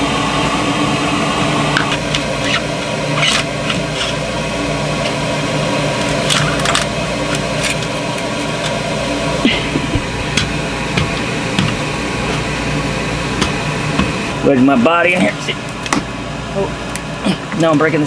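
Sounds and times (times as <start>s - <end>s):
machinery hum: 0.0s - 18.0s
tools clicking and scraping: 1.8s - 4.2s.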